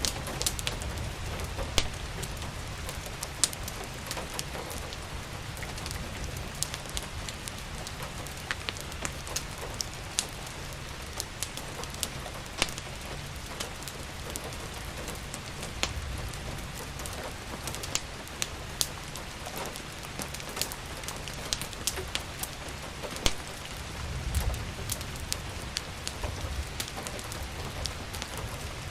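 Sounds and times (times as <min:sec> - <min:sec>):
rain hiss: 0:00.0 - 0:28.9
wood fire crackling: 0:00.0 - 0:28.9.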